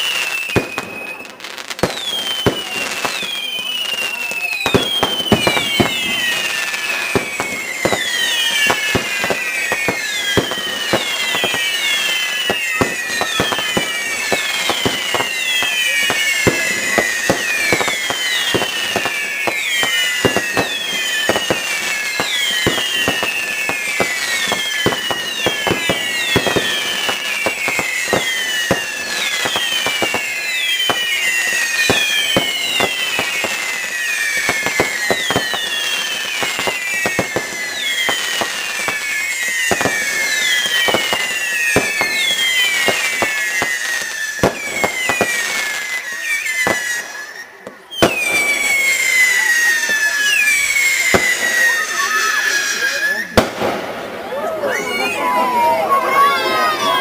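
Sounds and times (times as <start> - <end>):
falling firework whistles: 0.0 - 57.0
fireworks bangs and crackles: 0.0 - 57.0.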